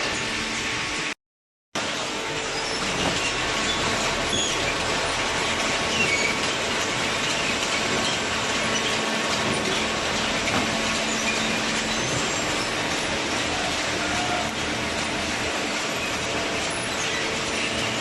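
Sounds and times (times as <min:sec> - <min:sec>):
baler mechanical din: 0:02.6 - 0:18.0.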